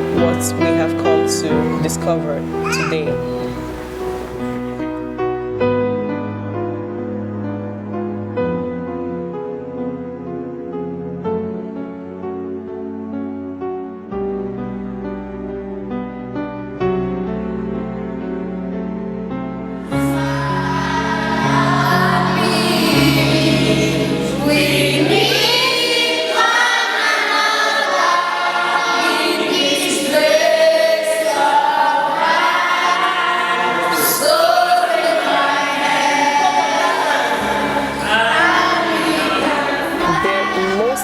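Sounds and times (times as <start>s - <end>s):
choir singing: 0.0s - 5.1s, 19.8s - 41.0s.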